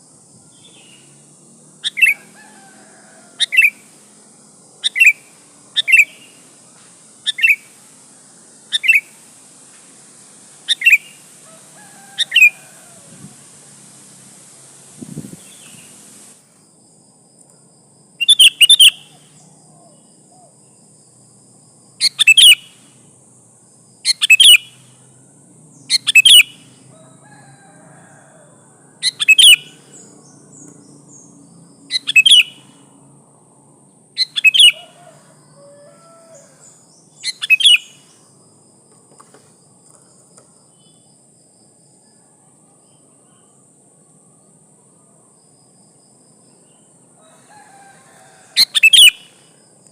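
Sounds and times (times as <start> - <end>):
bulbul chattering calls: 1.8 - 2.6, 3.4 - 3.9, 4.8 - 6.4, 7.2 - 7.7, 8.7 - 9.2, 10.6 - 13.0, 18.2 - 20.0, 22.0 - 22.8, 24.1 - 24.8, 25.8 - 26.7, 29.0 - 30.6, 31.9 - 32.8, 34.2 - 38.0, 48.6 - 49.4.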